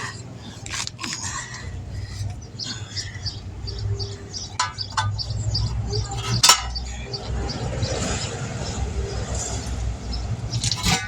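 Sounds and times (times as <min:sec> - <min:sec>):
steady low rumble: 0:00.0 - 0:11.0
small bird chirping: 0:00.4 - 0:11.0.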